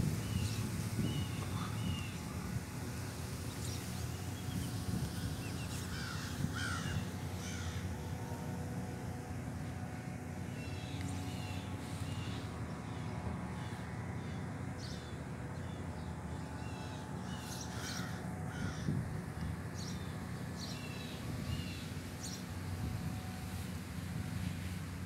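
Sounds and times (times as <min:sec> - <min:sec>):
low background rumble: 0:00.0 - 0:25.0
birds calling: 0:00.2 - 0:02.4, 0:03.4 - 0:08.0, 0:10.5 - 0:22.6.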